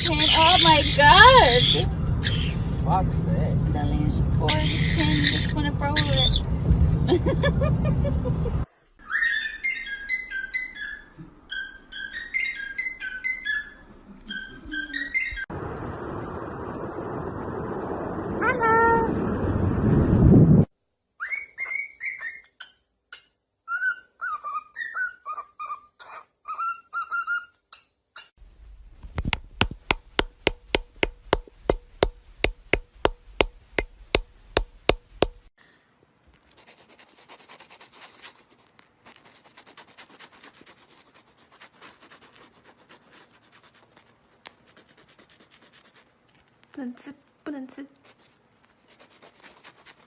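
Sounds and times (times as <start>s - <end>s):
parrot whistled chirps: 9.0s - 15.5s, 21.2s - 22.8s, 23.6s - 27.5s
faint scratching: 36.3s - 46.8s, 47.6s - 50.0s.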